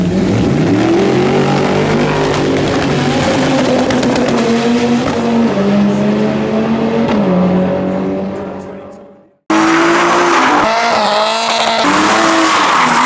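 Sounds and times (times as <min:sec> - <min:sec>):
car engine revving hard: 0:09.5 - 0:13.0.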